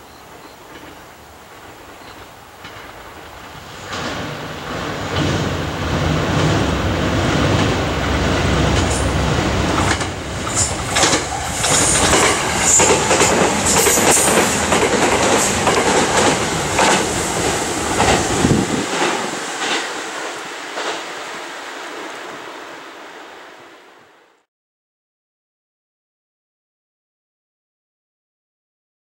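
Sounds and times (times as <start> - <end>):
train wheels clattering over rail joints: 2.0 - 21.2.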